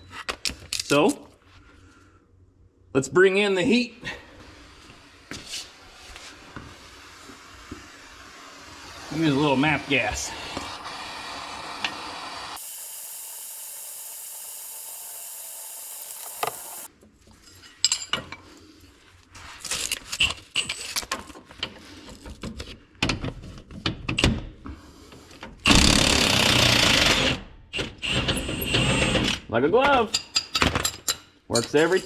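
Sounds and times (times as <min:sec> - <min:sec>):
gas torch hissing: 0:05.6 - 0:16.9.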